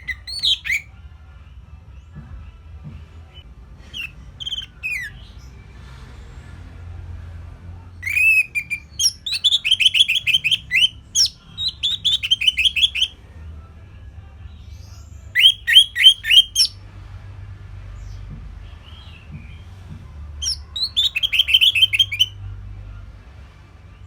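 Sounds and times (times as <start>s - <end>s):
thrush singing whistled notes: 0.0s - 0.9s, 3.9s - 5.4s, 8.0s - 13.1s, 15.4s - 16.8s, 20.4s - 22.4s.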